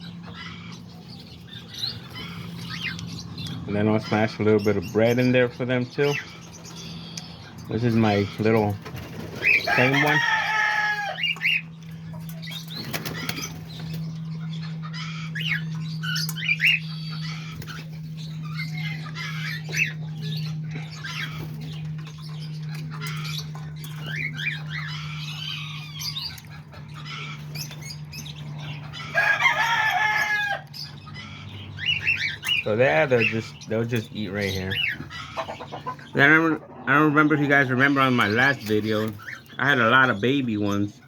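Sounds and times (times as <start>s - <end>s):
birds chirping: 0.0s - 41.0s
steady low hum: 0.0s - 41.0s
birds flapping wings: 8.7s - 10.4s, 12.6s - 14.1s.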